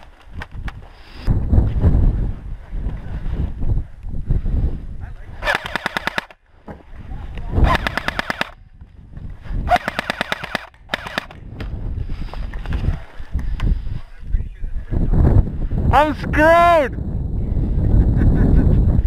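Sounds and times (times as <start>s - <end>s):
wind and handling rumble: 0.0s - 19.0s
airsoft rifle bursts: 5.4s - 6.4s, 9.7s - 11.4s.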